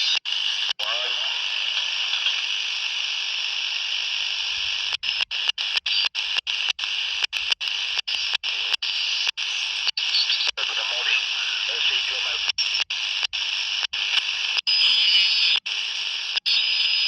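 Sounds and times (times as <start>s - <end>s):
walkie-talkie static hiss: 0.0s - 17.0s.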